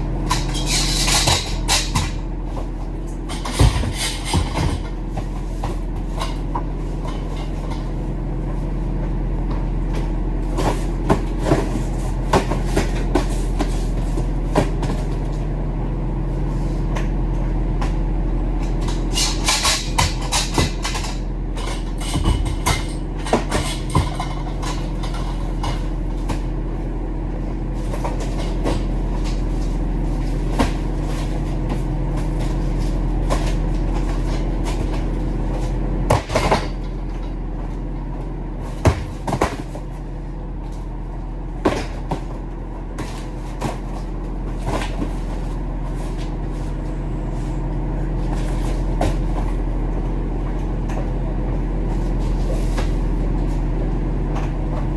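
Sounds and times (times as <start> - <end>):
diesel truck engine droning: 0.0 - 54.9
knocks and rattles: 0.2 - 7.8, 18.7 - 26.0.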